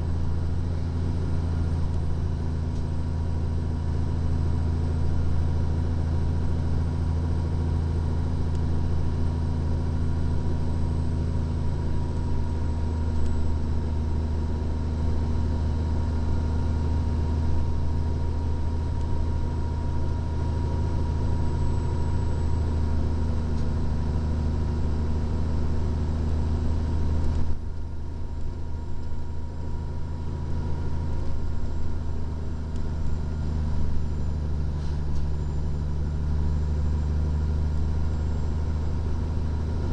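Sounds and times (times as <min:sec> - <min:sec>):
truck engine droning: 0:00.0 - 0:39.9
road noise: 0:37.6 - 0:39.9.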